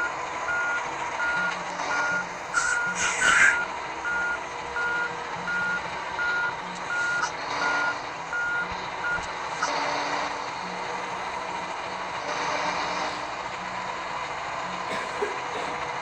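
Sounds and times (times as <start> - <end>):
truck reversing alarm beeping: 0.0 - 11.8
diesel engine running: 0.0 - 16.0.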